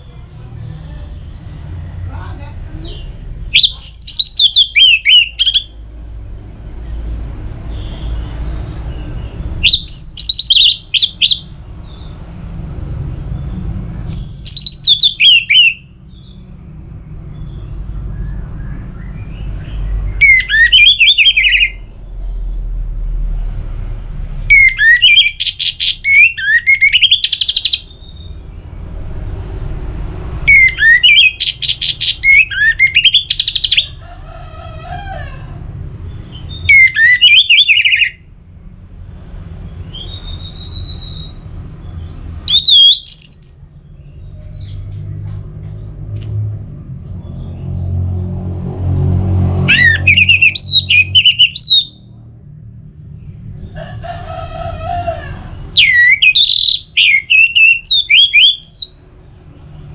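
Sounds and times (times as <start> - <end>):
bird singing whistled phrases: 3.5 - 5.7, 9.6 - 11.5, 14.2 - 15.9, 20.2 - 21.8, 24.5 - 28.3, 30.5 - 33.8, 36.6 - 38.2, 42.5 - 43.6, 49.7 - 52.0, 55.8 - 59.0.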